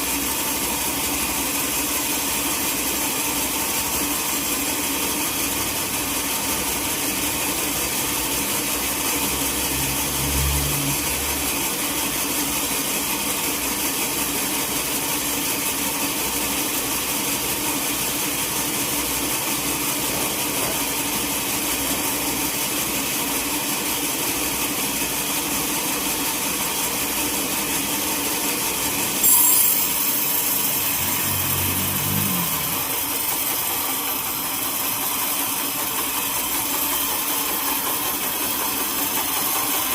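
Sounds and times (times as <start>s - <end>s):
sawmill saw cutting log: 29.0s - 39.9s.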